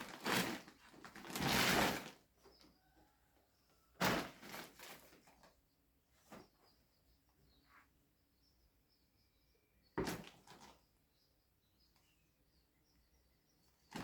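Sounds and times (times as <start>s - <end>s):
faint bird chirps: 2.4s - 4.0s, 5.4s - 14.0s.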